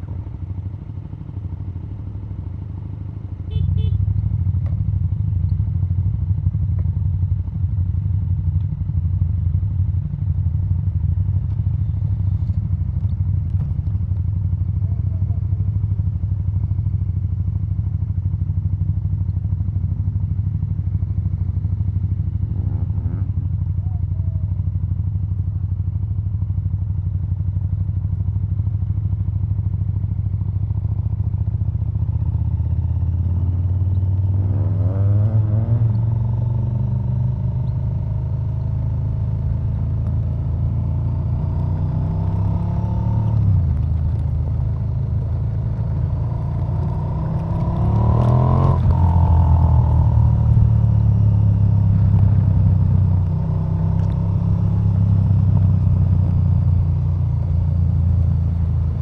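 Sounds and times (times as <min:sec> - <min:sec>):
motorcycle engine accelerating: 0:21.0 - 0:25.2, 0:29.0 - 0:59.0.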